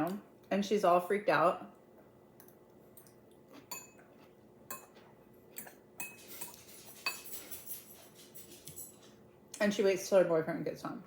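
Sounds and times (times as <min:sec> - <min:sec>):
cutlery clinking against dishes: 0:05.6 - 0:09.0.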